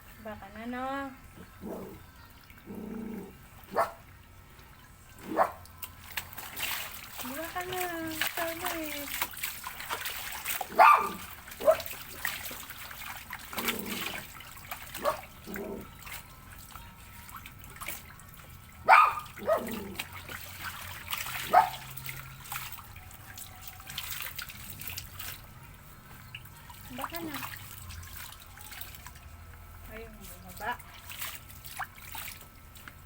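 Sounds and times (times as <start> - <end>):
water trickling and splashing: 0.0 - 33.0
puppy yelping: 10.7 - 11.9, 18.9 - 20.0.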